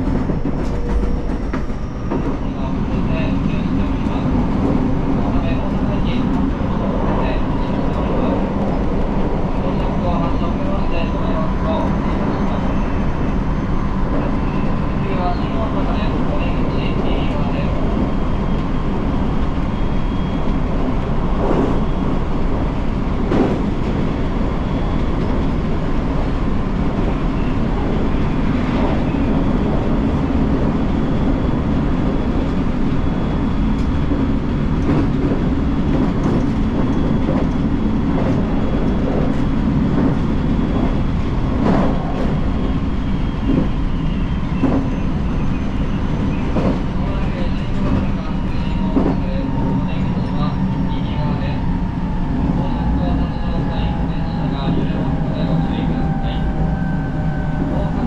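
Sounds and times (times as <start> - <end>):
train rumbling at speed: 0.0 - 58.0.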